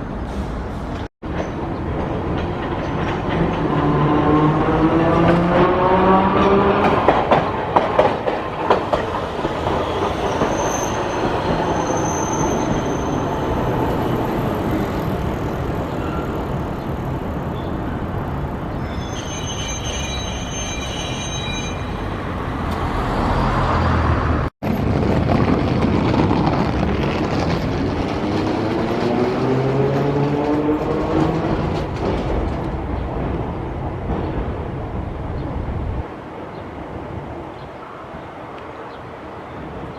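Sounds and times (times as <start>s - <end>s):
wheel squeal: 9.6s - 14.4s, 18.8s - 22.1s
wheels clattering over rail joints: 24.8s - 34.7s.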